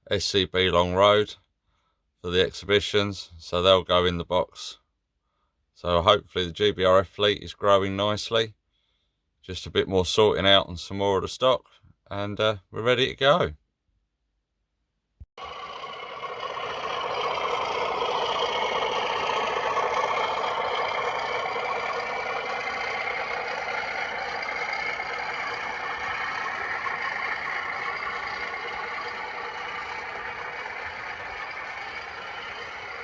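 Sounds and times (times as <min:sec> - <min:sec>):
diesel engine sound from small speaker: 0:15.4 - 0:33.0
model train running noise: 0:15.4 - 0:33.0.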